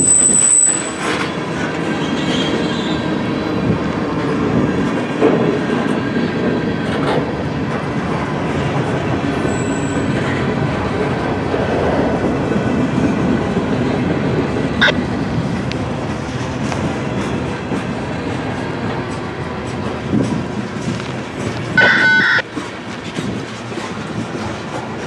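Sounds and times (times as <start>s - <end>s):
freight train wheels drumming: 22.4s - 25.0s.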